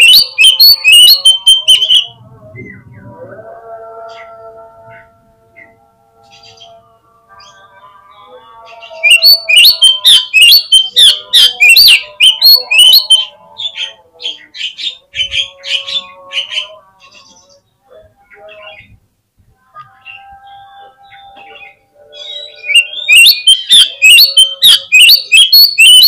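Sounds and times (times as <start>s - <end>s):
bird singing high notes: 0.0s - 2.8s, 8.8s - 13.3s, 20.0s - 26.0s.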